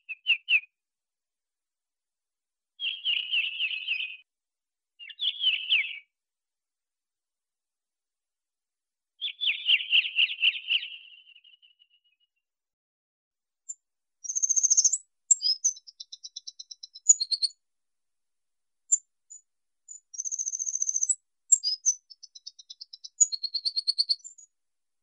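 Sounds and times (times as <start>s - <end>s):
finch singing trills and twitters: 2.8s - 4.2s, 5.0s - 6.0s, 9.2s - 11.9s, 14.2s - 17.6s, 19.9s - 24.5s.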